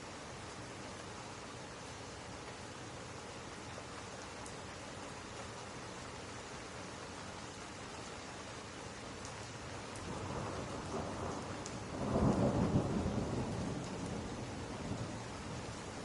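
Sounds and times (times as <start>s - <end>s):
steady rain: 0.0s - 16.0s
rumble of thunder: 10.0s - 15.9s.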